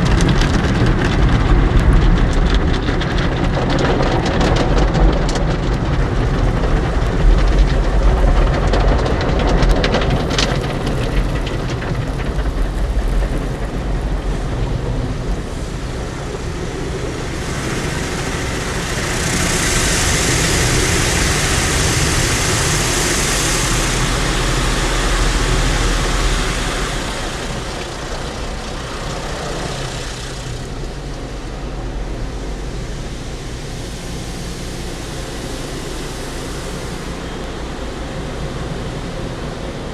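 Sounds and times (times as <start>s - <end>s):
car wash water spraying and brushes: 0.0s - 39.9s
loud hiss: 10.2s - 39.9s.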